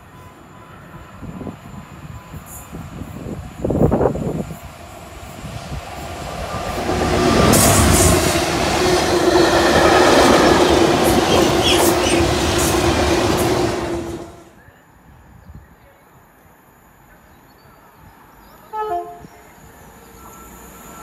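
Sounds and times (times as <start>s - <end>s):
freight train rumbling past: 0.0s - 14.5s.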